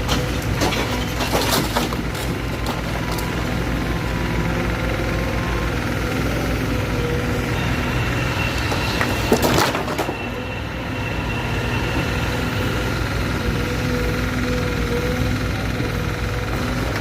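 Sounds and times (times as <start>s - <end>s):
heavy machine engine running: 0.0s - 17.0s.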